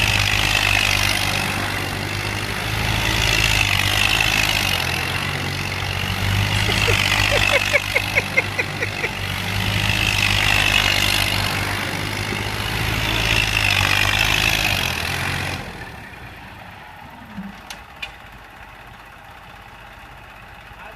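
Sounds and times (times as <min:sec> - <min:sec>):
tractor engine running hard: 0:00.0 - 0:20.9.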